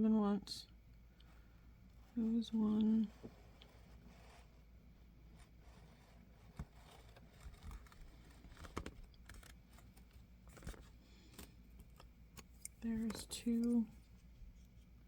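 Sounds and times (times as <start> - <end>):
craft knife cutting rubber: 5.8 - 10.1.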